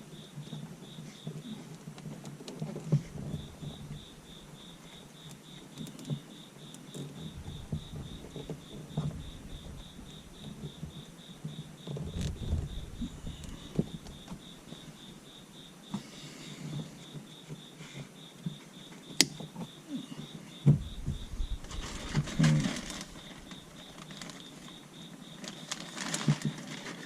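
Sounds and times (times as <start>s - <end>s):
wiring rustling and knocking: 6.9s - 14.9s, 20.6s - 24.8s.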